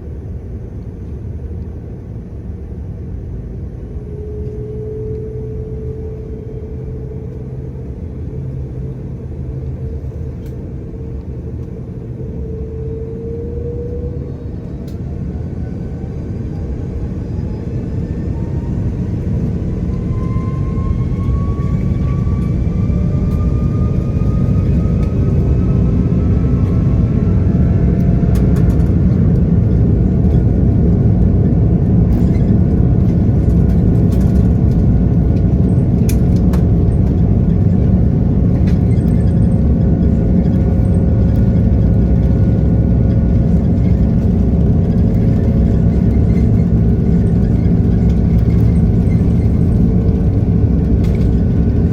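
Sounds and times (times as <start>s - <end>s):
rising engine whine: 0.0s - 51.9s
jet engines spooling up: 3.6s - 51.9s.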